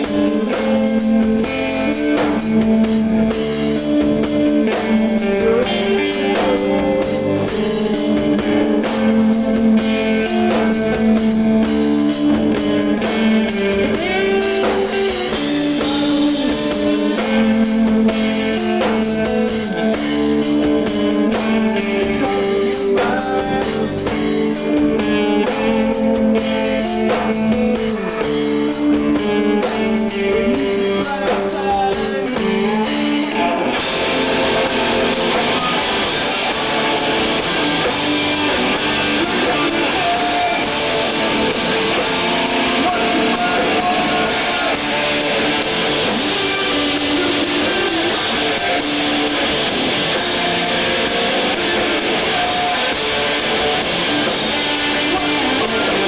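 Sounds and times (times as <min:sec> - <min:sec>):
drum kit: 0:00.0 - 0:56.0
live rock band playing loud: 0:00.0 - 0:56.0
ringing electric guitar notes: 0:32.6 - 0:56.0.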